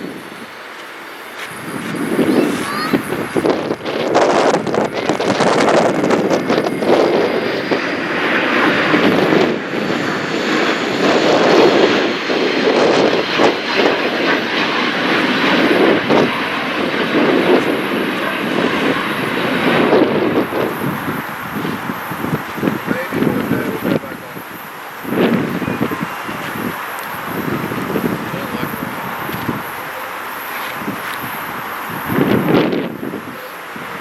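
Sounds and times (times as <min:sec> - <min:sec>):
jet engines running with whine: 0:00.0 - 0:34.0
wind gusting on microphone: 0:00.0 - 0:34.0.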